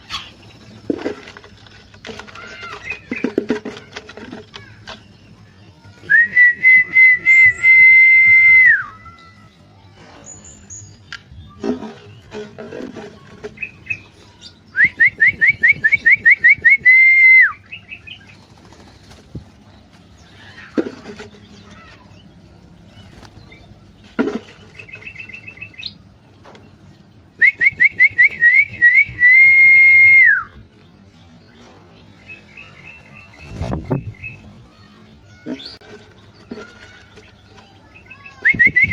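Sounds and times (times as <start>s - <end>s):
bulbul whistled song: 6.0s - 9.3s, 13.6s - 18.1s, 27.3s - 30.6s, 38.1s - 38.9s.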